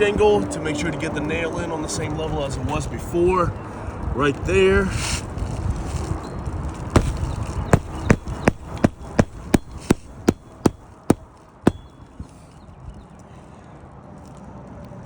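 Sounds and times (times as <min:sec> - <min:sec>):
hammer striking nail: 0:07.0 - 0:11.9.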